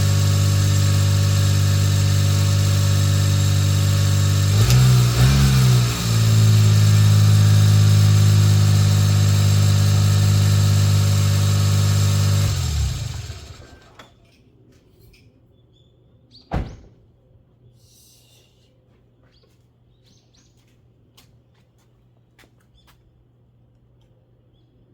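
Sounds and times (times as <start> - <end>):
car engine idling: 0.0 - 14.0
thump: 16.5 - 17.0.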